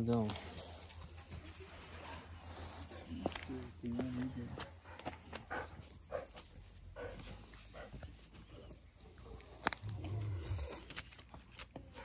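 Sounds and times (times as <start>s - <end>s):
faint dog sounds: 0.6s - 11.0s.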